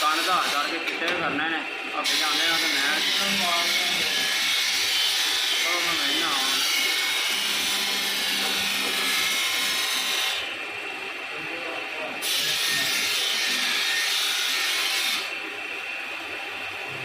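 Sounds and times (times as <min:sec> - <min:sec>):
power grinder on steel blade: 0:00.0 - 0:00.8, 0:02.0 - 0:10.6, 0:12.2 - 0:15.4.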